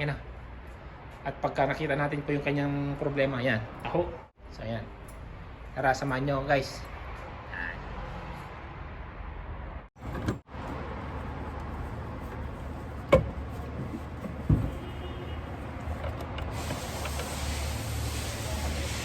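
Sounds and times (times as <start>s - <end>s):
workshop background noise: 10.0s - 19.0s.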